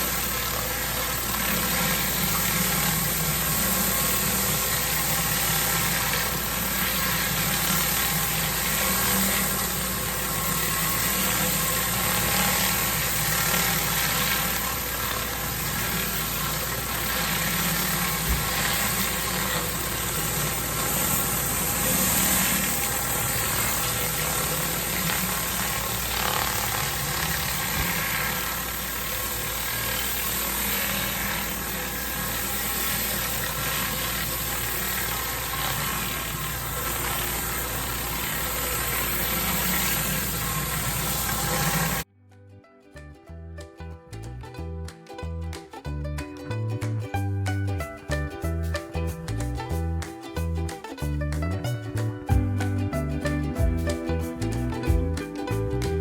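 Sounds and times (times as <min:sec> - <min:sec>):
high-pressure water hissing: 0:00.0 - 0:42.0
pressure washer engine running: 0:00.0 - 0:42.0.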